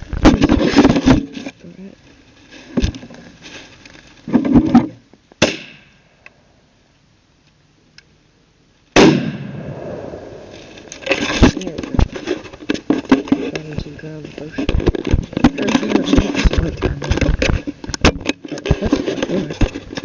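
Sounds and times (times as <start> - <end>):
gunshots with echo: 9.0 - 10.5.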